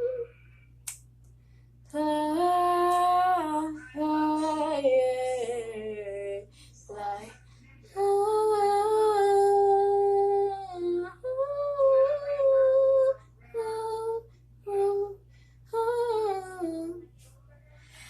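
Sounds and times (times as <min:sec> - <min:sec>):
woman humming: 0:00.0 - 0:00.5.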